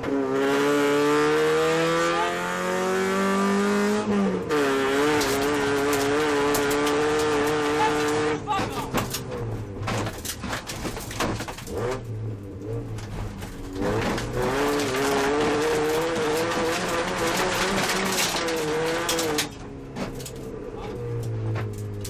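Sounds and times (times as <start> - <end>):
rally car engine revving: 0.0 - 22.0
gravel clicking under car: 8.6 - 22.0.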